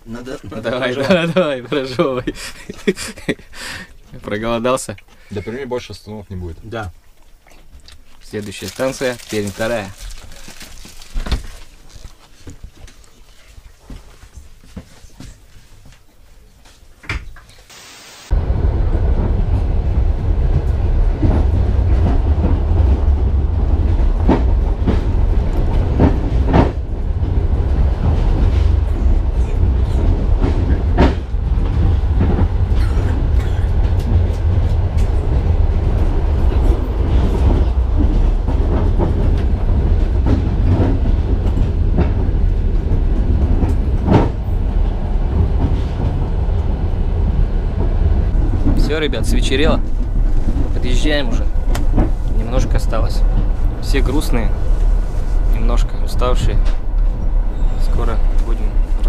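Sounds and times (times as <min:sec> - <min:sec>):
train wheels rumbling on track: 0:18.3 - 0:59.0.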